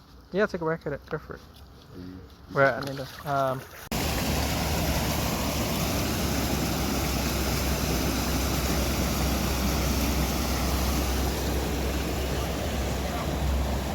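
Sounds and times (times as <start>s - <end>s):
heavy rain rushing: 3.9s - 13.9s.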